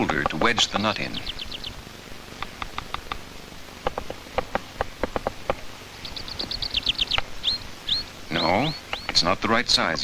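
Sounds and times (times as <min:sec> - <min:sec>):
woodpecker tapping on wood: 0:00.0 - 0:01.8, 0:02.4 - 0:10.0
short high bird calls: 0:00.6 - 0:01.8, 0:05.9 - 0:09.3.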